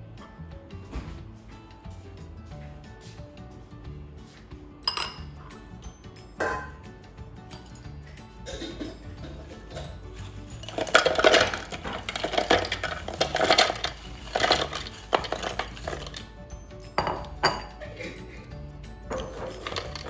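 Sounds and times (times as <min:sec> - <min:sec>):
background music: 0:00.0 - 0:20.0
cookies clattering into plastic bowl: 0:08.5 - 0:16.3, 0:17.0 - 0:18.2, 0:19.1 - 0:20.0.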